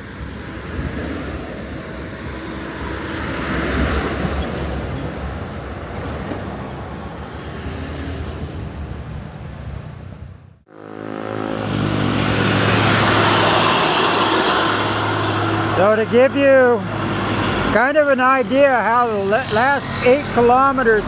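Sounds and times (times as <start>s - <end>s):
vehicle passing close: 0.0s - 10.1s, 10.7s - 21.0s
traffic rumble: 0.0s - 21.0s.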